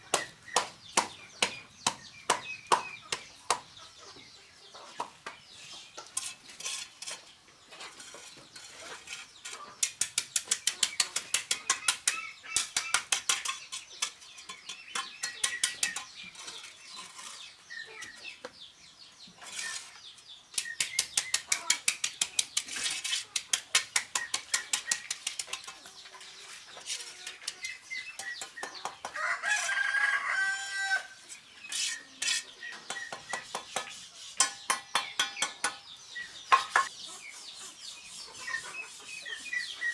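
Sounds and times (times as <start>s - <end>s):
rooster crowing: 29.2s - 31.2s.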